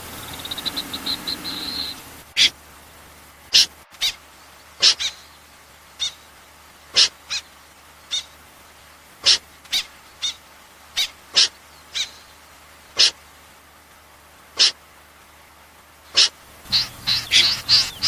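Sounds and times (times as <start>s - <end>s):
bird giving sharp high calls: 0.0s - 2.6s, 4.8s - 5.3s, 6.0s - 6.2s, 7.0s - 7.4s, 8.1s - 8.4s, 11.0s - 12.3s, 13.0s - 13.2s, 14.6s - 14.8s, 16.2s - 18.0s.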